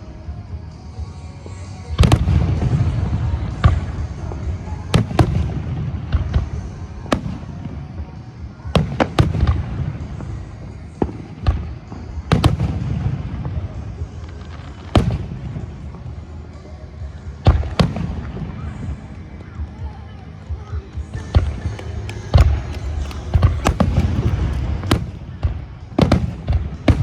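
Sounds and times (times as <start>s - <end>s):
fireworks bangs: 21.6s - 25.4s.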